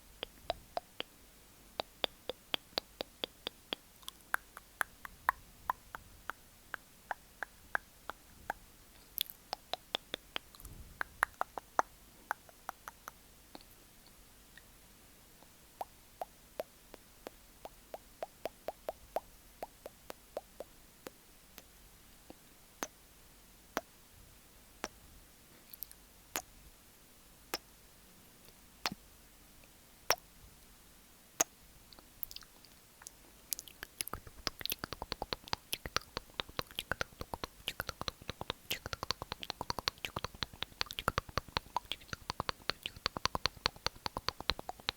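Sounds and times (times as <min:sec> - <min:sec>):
tongue and lip clicks: 0:00.0 - 0:01.1, 0:01.8 - 0:14.7, 0:15.4 - 0:21.7, 0:25.6 - 0:26.5, 0:28.4 - 0:29.0, 0:30.1 - 0:30.3, 0:31.4 - 0:44.9.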